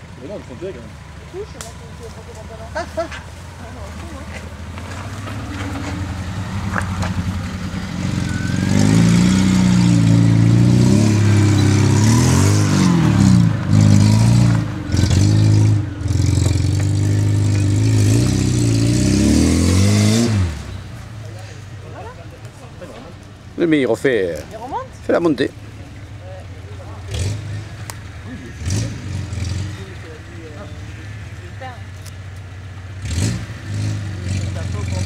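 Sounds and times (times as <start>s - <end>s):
engine revving hard: 7.7s - 20.8s, 27.0s - 30.0s, 33.0s - 35.0s.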